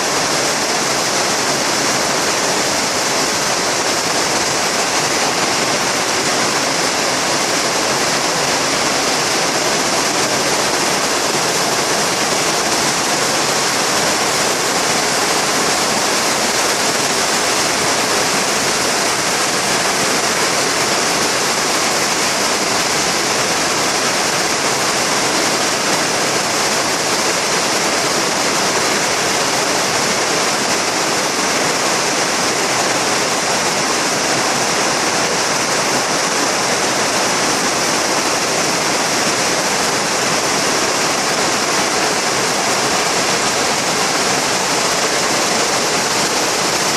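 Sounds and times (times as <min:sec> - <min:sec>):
heavy rain pouring: 0:00.0 - 0:46.9.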